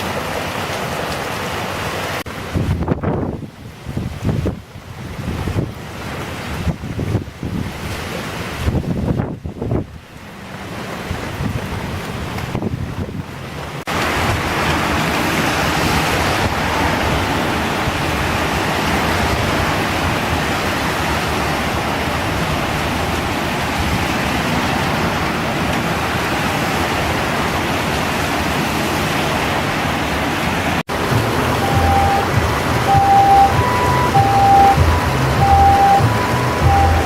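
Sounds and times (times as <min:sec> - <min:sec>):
heavy rain: 0:00.0 - 0:37.0
water rushing through gutter: 0:00.0 - 0:37.0
short beeping tones: 0:31.6 - 0:37.0.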